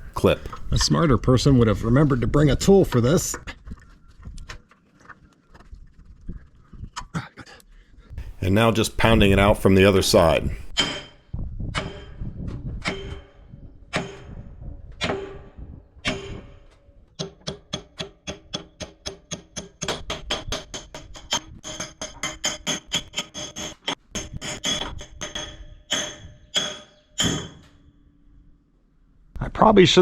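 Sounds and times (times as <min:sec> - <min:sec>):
hammer striking steel pin: 0:10.6 - 0:11.2, 0:11.8 - 0:27.7.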